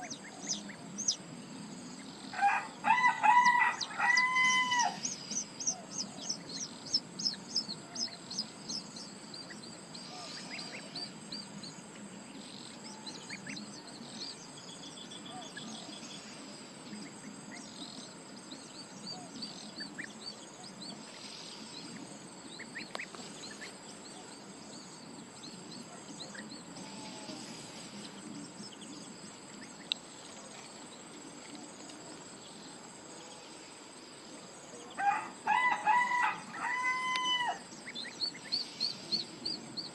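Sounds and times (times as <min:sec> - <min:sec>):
high insect drone: 0:00.0 - 0:39.9
small birds chirping: 0:00.0 - 0:39.9.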